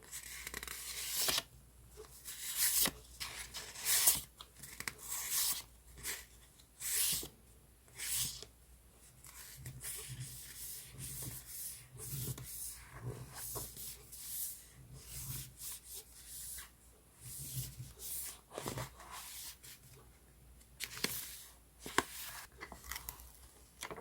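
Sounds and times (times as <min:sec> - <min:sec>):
paper sliding and rubbing: 0:09.2 - 0:19.9, 0:21.0 - 0:22.5.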